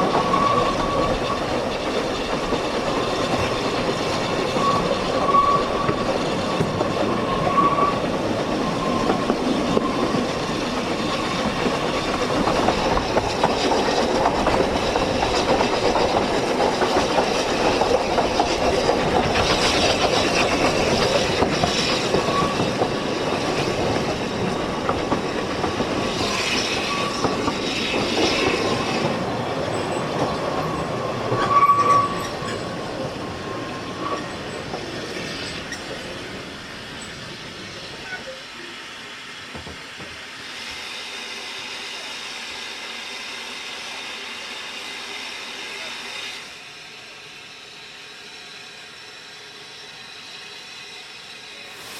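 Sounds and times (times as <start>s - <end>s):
high wheel squeal: 0.0s - 13.6s, 18.3s - 25.1s, 26.0s - 36.2s, 37.0s - 38.8s
train wheels rumbling on rails: 0.0s - 51.9s.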